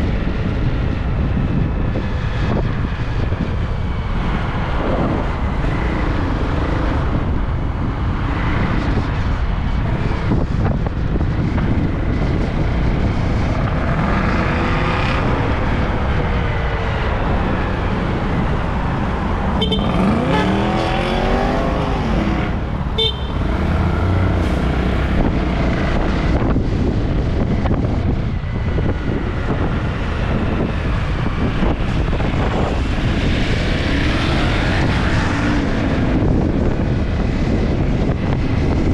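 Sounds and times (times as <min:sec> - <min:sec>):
road traffic: 0:00.0 - 0:38.9
wind buffeting microphone: 0:00.0 - 0:38.9
short horn toots: 0:19.6 - 0:20.3, 0:23.0 - 0:23.6.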